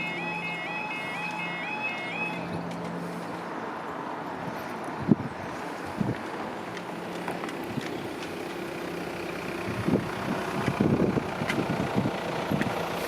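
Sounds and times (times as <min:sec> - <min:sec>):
outdoor background noise: 0:00.0 - 0:13.0
vehicle engine running: 0:05.6 - 0:13.0.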